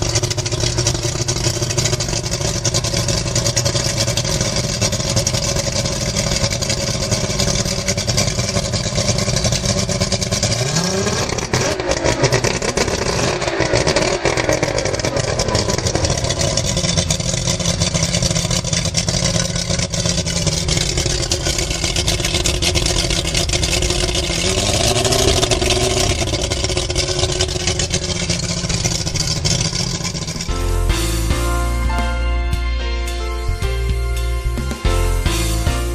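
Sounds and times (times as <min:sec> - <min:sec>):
outboard engine revving: 0:00.0 - 0:31.5.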